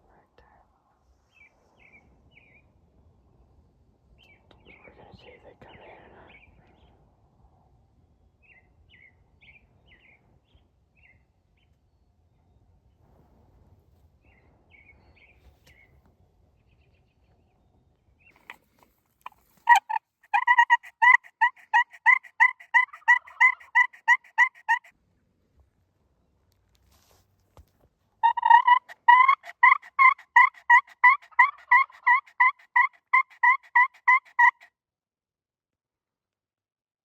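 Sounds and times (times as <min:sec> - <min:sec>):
turkey yelps: 0:19.6 - 0:24.9, 0:28.2 - 0:34.7.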